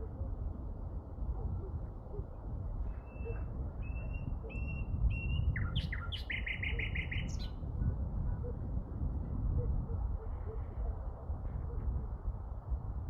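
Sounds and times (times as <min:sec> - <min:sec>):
songbird singing: 0:03.0 - 0:07.6.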